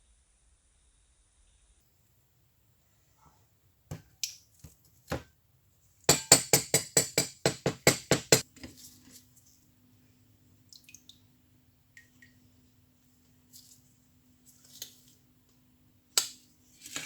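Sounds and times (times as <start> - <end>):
hammer striking metal: 6.1 - 8.4.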